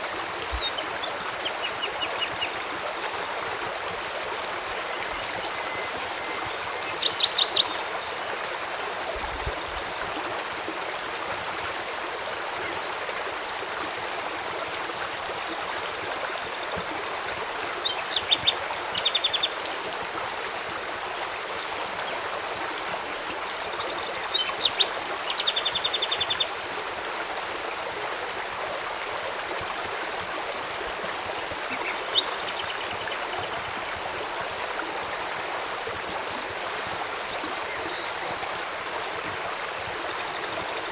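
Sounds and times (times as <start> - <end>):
river flowing: 0.0 - 40.9
birds chirping trills: 31.7 - 34.1.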